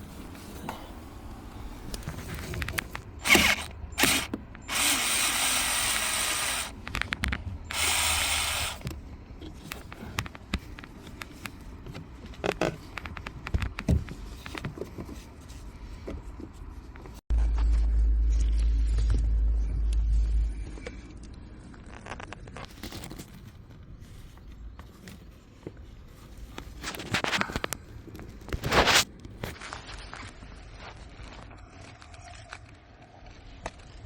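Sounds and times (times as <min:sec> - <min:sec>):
steady low rumble: 0:17.3 - 0:22.4.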